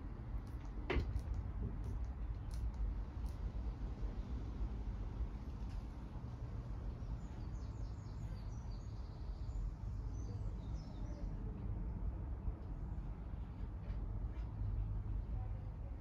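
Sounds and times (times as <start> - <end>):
small birds chirping: 6.8 - 11.5.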